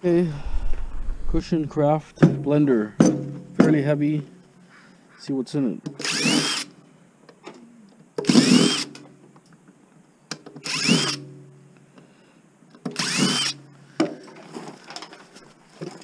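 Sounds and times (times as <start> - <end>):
cordless drill spinning: 6.0 - 6.7, 8.3 - 8.9, 10.6 - 11.2, 13.0 - 13.6.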